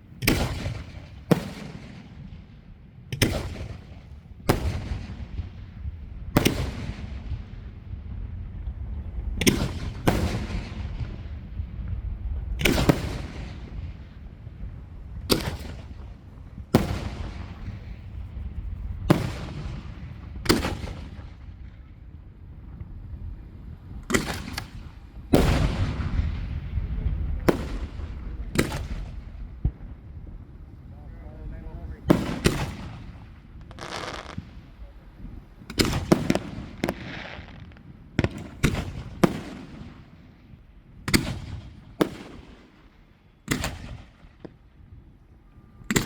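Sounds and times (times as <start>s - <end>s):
continuous low rumble: 0.0s - 46.0s
fireworks bursting: 0.2s - 2.1s, 3.2s - 5.8s, 8.6s - 21.9s, 23.9s - 30.0s, 31.9s - 35.0s, 35.6s - 40.5s.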